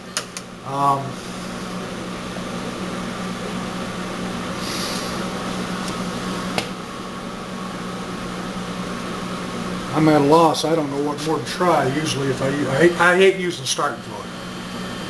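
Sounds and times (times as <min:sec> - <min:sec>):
low mechanical hum: 0:00.0 - 0:15.0
brief hiss: 0:04.6 - 0:05.3.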